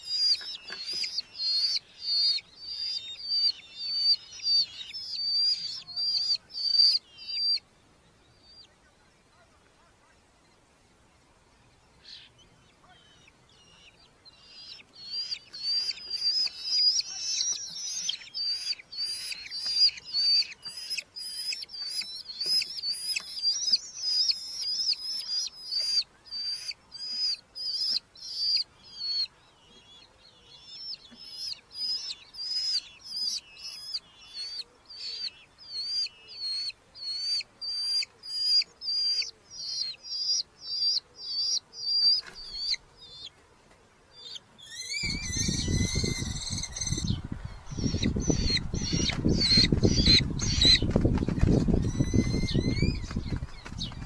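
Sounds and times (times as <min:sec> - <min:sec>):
falcons giving shrill calls: 0:44.7 - 0:47.1.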